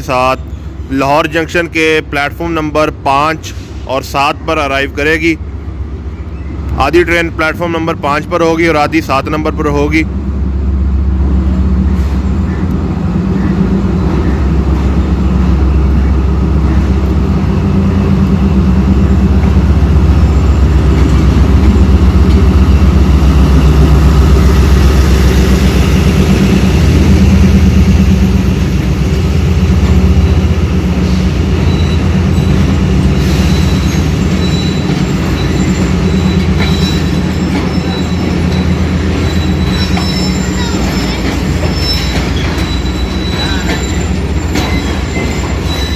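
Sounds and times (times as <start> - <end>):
diesel locomotive engine drone: 0.0 - 45.9
rumble of train coaches: 0.0 - 45.9
high-pitched wheel squeal: 31.6 - 45.9.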